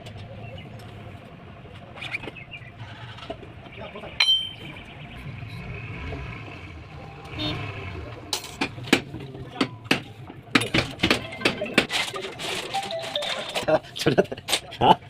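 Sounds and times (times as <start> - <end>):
diesel truck engine running: 0.0 - 14.3
sharp knocks and clicks: 8.5 - 12.2.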